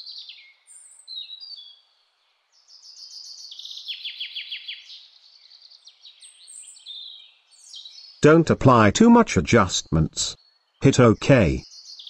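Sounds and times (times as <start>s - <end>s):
birds chirping and singing: 0.0s - 8.2s, 9.8s - 12.0s
bird trill: 2.6s - 8.2s, 10.4s - 12.0s.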